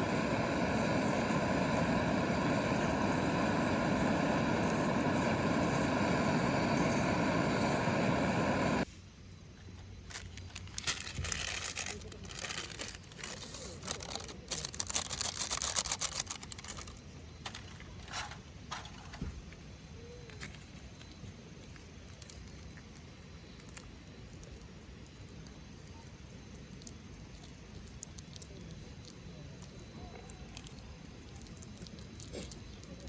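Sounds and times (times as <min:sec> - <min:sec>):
campfire crackling and popping: 0:00.0 - 0:08.9
crinkly rustling: 0:09.8 - 0:19.2, 0:20.2 - 0:29.1.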